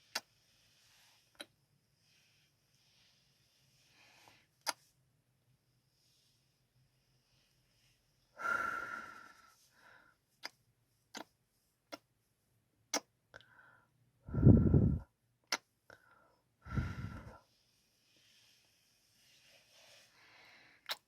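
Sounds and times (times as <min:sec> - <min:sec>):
lip smacks: 0:15.5 - 0:15.7.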